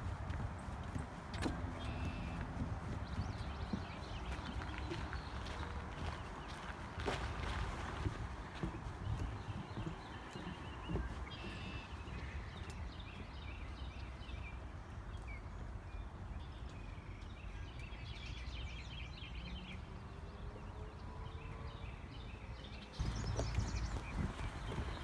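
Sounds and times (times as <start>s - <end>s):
footsteps on trail: 0.0s - 13.2s, 23.0s - 25.0s
small birds chirping: 0.0s - 19.8s, 22.9s - 25.0s
wind rumble: 23.0s - 25.0s.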